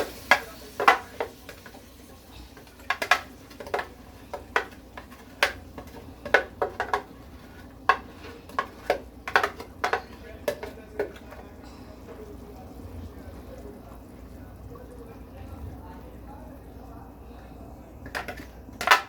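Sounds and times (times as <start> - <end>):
utensil clinking against a pot: 0.0 - 15.0.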